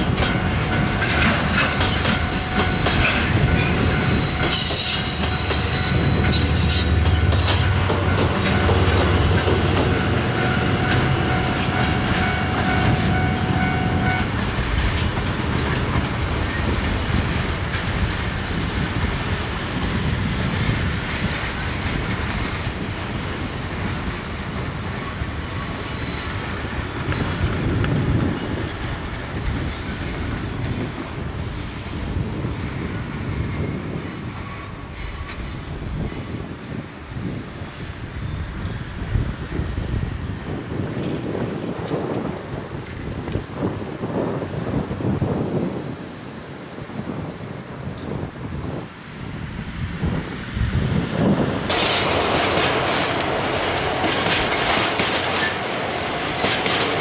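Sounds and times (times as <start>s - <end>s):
rail-joint clicks: 0.0s - 18.2s, 51.6s - 57.0s
freight train rumble: 0.0s - 57.0s
wagons rolling on rails: 51.7s - 57.0s.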